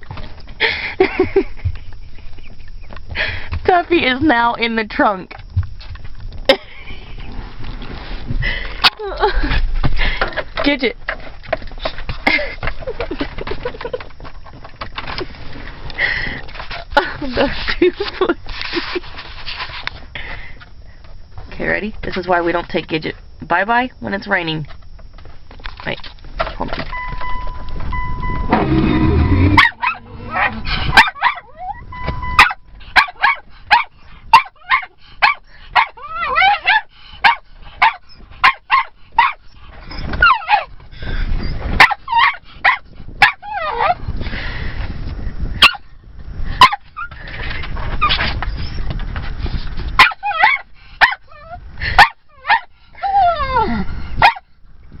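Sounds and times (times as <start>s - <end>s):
dog whining: 28.0s - 33.4s, 35.8s - 40.7s, 43.2s - 44.0s, 48.0s - 48.9s, 50.0s - 54.4s
dog barking frantically: 29.4s - 31.8s, 32.4s - 39.4s, 40.2s - 40.7s, 41.8s - 44.0s, 45.6s - 45.8s, 46.6s - 47.1s, 50.0s - 52.7s, 54.2s - 54.5s.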